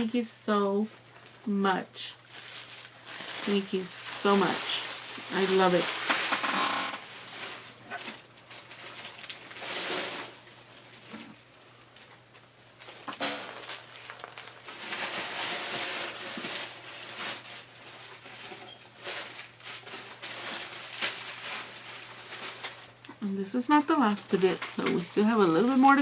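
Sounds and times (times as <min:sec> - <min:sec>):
paper rustling: 0:02.3 - 0:11.3.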